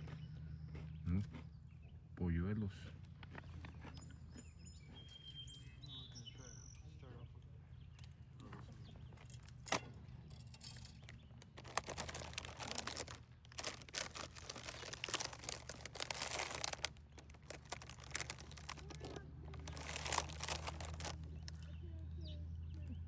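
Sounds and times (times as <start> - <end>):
dense crackling and rustling: 11.4 - 21.6.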